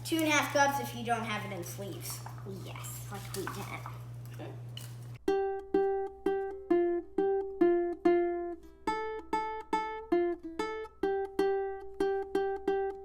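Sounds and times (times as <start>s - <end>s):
plucked ukulele tune: 4.8s - 13.0s.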